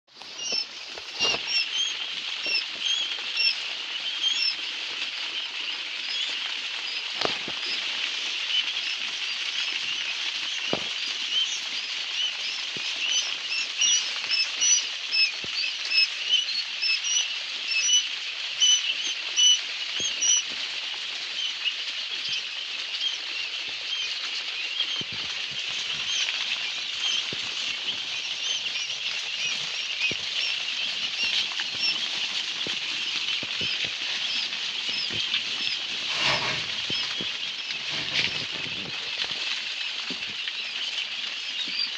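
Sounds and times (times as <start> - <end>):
quail chicks peeping: 0.1 - 41.9.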